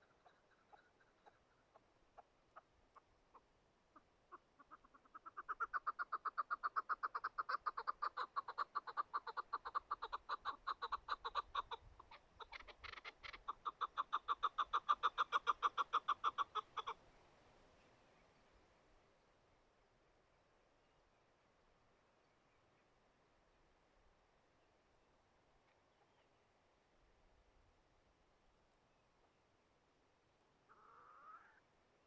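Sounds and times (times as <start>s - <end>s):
partridge clucking call: 0.0s - 17.0s.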